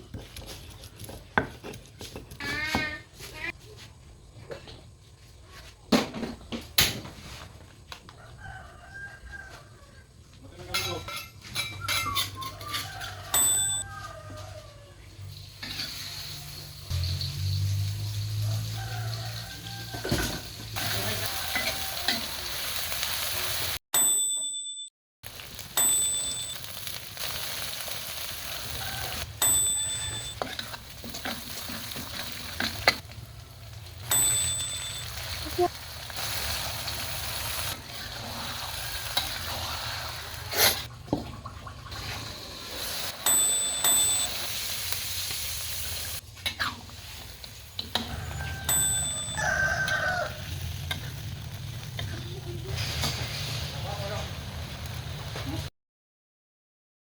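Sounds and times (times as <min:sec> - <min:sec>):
chickens clucking and crowing: 0:08.1 - 0:10.3, 0:18.4 - 0:22.6, 0:47.8 - 0:51.5
bright metallic dings: 0:13.3 - 0:13.9, 0:24.0 - 0:24.9, 0:25.8 - 0:27.0, 0:29.4 - 0:30.6, 0:34.0 - 0:35.2, 0:43.2 - 0:44.8, 0:48.4 - 0:50.1
food sizzling in a pan: 0:15.2 - 0:23.8, 0:25.2 - 0:40.9, 0:41.9 - 0:55.7.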